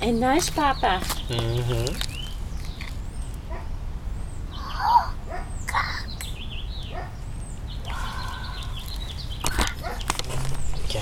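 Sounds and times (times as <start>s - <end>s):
birds chirping: 0.0s - 11.0s
lower bird call: 4.4s - 10.1s.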